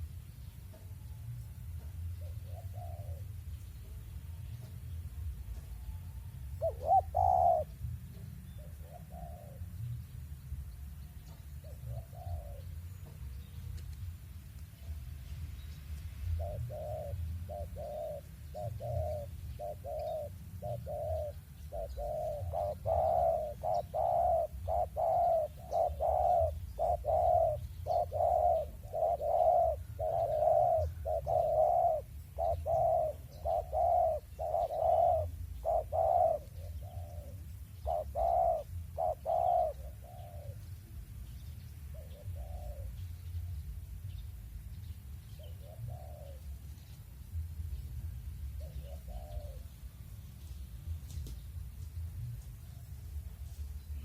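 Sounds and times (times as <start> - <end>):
dove cooing: 1.7 - 4.0, 5.5 - 10.1, 11.2 - 13.2, 16.3 - 41.0, 41.9 - 43.4, 45.3 - 47.4, 48.4 - 50.0.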